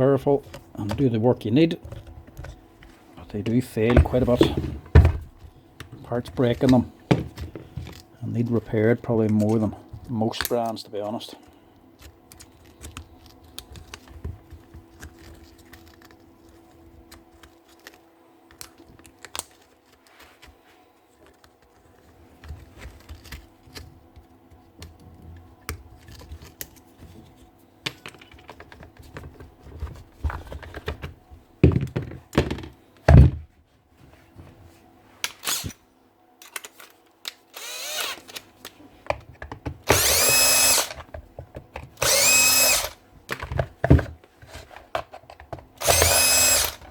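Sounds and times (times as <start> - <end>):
power drill motor running: 35.4 - 35.7, 37.5 - 38.3, 39.9 - 41.0, 42.0 - 43.0, 45.8 - 46.9
tools clicking and knocking: 44.9 - 46.9.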